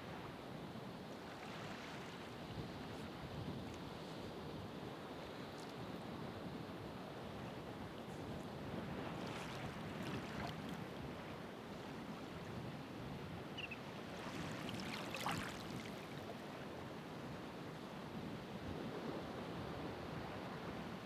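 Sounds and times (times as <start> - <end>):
water splashes: 14.2 - 16.2.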